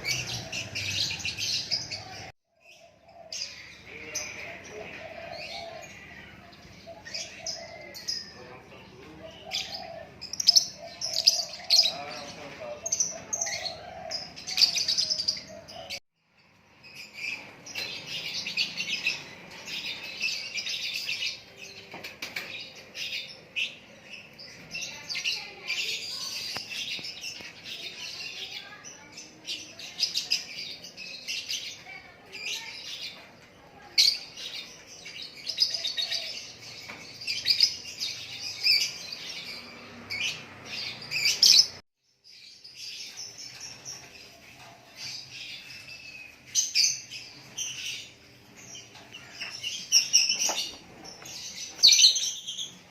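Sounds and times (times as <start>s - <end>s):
songbird chirping: 0.0s - 52.9s.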